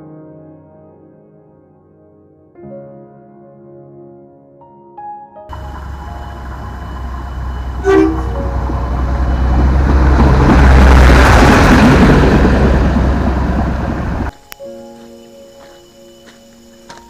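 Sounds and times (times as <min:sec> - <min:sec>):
diesel train passing: 0:05.5 - 0:14.5
train horn toot: 0:05.6 - 0:10.4.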